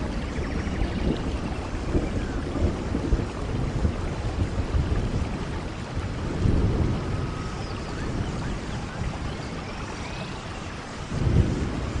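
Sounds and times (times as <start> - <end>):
low rolling thunder: 0.0 - 12.0
steady rain: 0.0 - 12.0.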